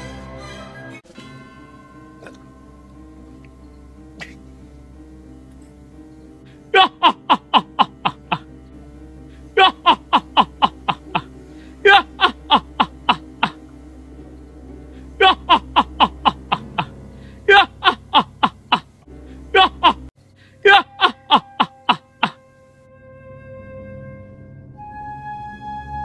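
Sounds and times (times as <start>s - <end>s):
low steady drone: 1.2s - 26.0s
ghostly laugh effect: 6.7s - 8.5s, 9.6s - 13.6s, 15.2s - 18.9s, 19.5s - 22.4s.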